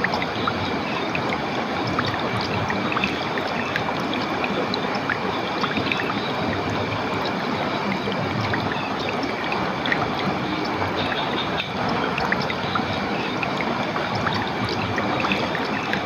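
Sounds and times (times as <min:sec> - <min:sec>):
running water: 0:00.0 - 0:16.0.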